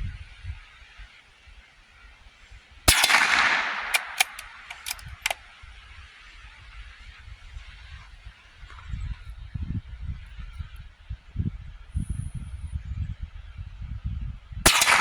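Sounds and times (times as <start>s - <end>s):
rifle shot with echo: 2.9s - 5.4s, 14.7s - 15.0s
short sharp clicks: 2.9s - 5.4s.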